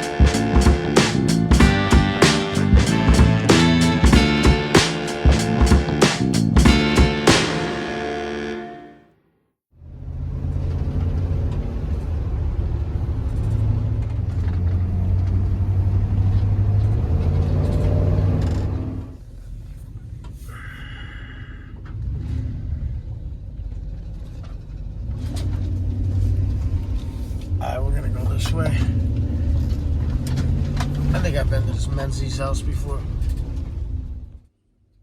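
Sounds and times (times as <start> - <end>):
short high tone: 0.0 - 9.1
vehicle rumble: 9.8 - 20.9, 21.7 - 34.5.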